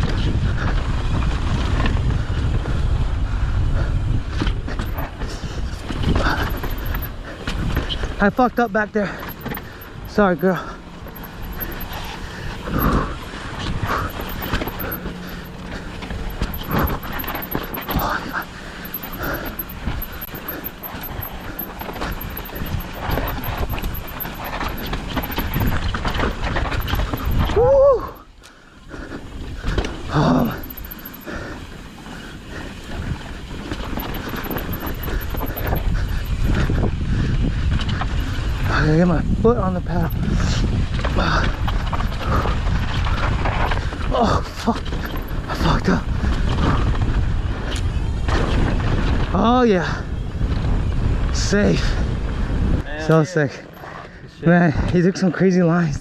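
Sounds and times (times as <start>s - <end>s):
wind rushing over microphone: 0.0s - 28.2s, 32.4s - 44.1s
bike rattling over bumps: 0.0s - 52.5s
tyres on loose dirt: 4.5s - 49.3s.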